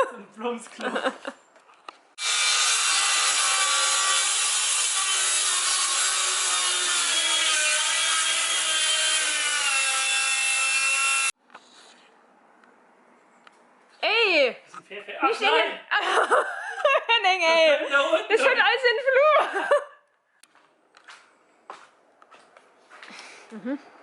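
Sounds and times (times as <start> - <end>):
power saw cutting wood: 2.2 - 11.4.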